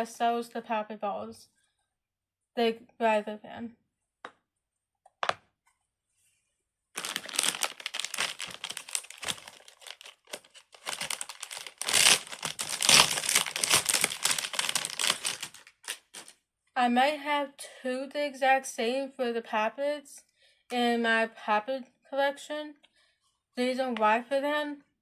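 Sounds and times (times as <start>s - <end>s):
plastic wrapping crinkling: 7.0s - 16.4s.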